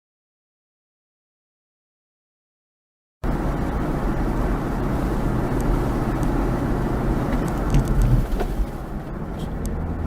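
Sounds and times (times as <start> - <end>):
vehicle road and engine noise: 3.2 - 10.0.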